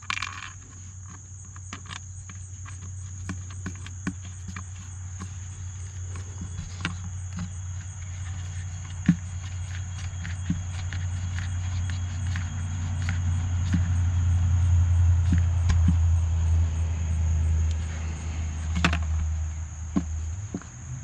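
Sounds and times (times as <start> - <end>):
crickets chirring: 0.0 - 21.0
low steady hum: 0.0 - 21.0.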